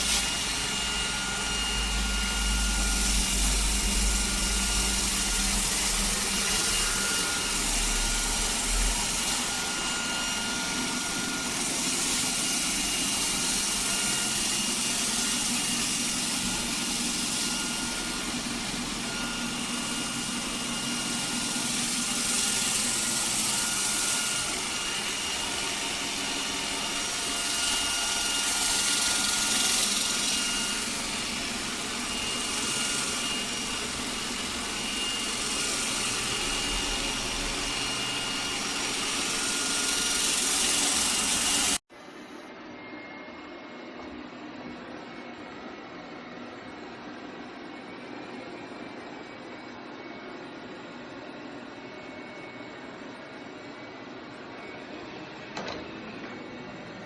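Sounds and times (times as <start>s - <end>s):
robot vacuum running: 0.0s - 41.8s.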